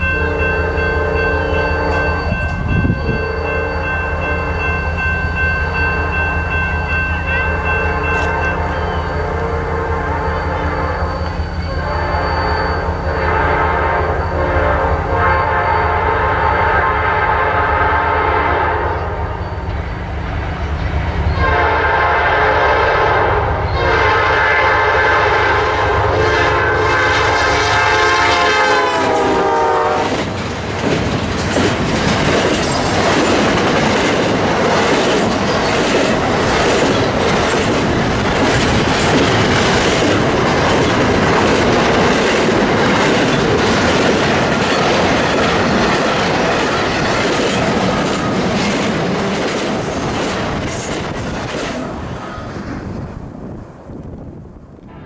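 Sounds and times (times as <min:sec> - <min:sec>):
train air horn: 0:00.0 - 0:04.6, 0:07.6 - 0:19.4, 0:21.4 - 0:30.2
train cars rattling on rails: 0:00.0 - 0:54.9
diesel locomotive engine rumble: 0:00.0 - 0:55.0.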